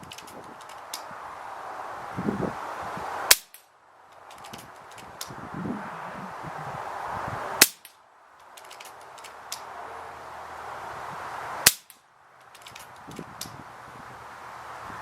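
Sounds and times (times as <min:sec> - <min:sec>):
faint clicks: 0:00.0 - 0:01.1, 0:07.8 - 0:09.7, 0:11.8 - 0:13.6
air rifle shots: 0:03.3 - 0:03.6, 0:07.6 - 0:08.0, 0:11.6 - 0:12.0.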